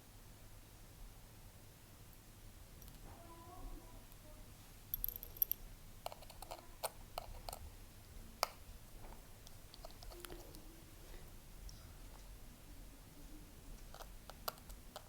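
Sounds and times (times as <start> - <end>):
tools and parts clicking: 4.9 - 7.6.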